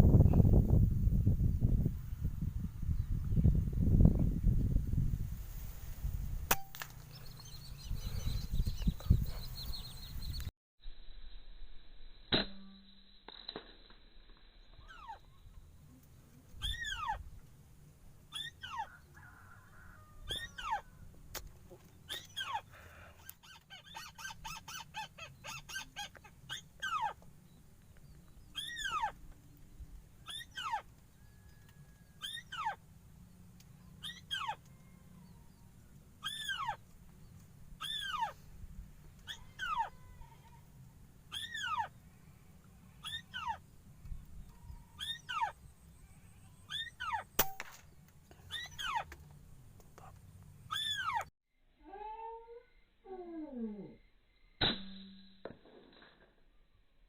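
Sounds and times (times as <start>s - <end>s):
rising and falling bird call: 18.3s - 21.1s, 28.4s - 29.3s, 30.2s - 32.8s, 33.8s - 36.8s, 37.8s - 38.4s, 41.3s - 42.0s, 43.0s - 43.7s, 44.4s - 47.4s, 48.5s - 49.1s, 50.7s - 51.3s.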